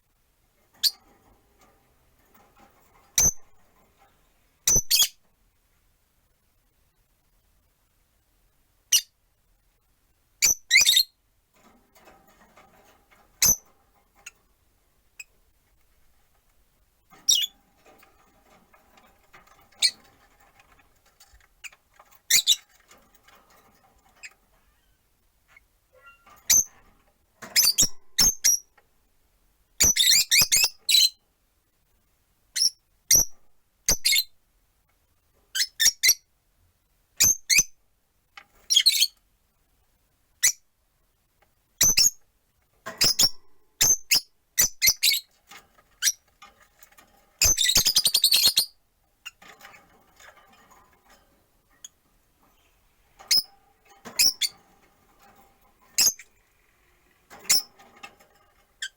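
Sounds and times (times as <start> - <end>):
lovebirds chirping: 17.2 - 17.6.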